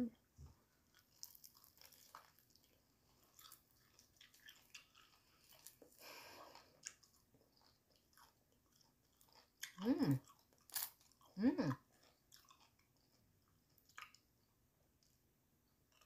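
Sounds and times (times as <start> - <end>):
chewing fried chicken: 0.7 - 15.2, 15.8 - 16.0.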